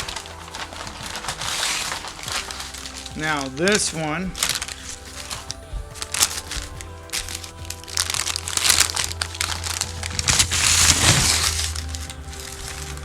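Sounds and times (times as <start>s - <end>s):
background music: 0.0s - 13.0s
wrapping crinkling: 0.0s - 13.0s.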